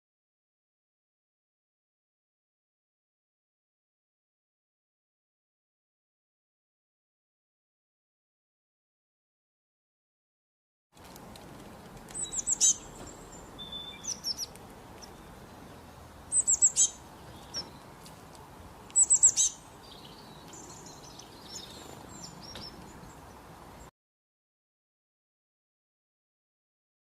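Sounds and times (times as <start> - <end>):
songbird singing high notes: 12.2 - 17.8, 18.9 - 23.3.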